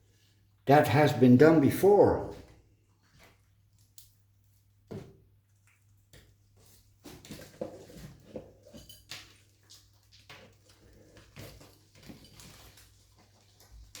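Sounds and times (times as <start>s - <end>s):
rustling of potting mix: 5.6s - 14.0s.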